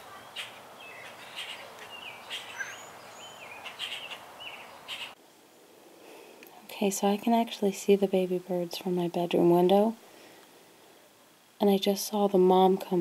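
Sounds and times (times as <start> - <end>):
birds chirping: 0.0 - 5.2
steady outdoor hiss: 0.0 - 13.0.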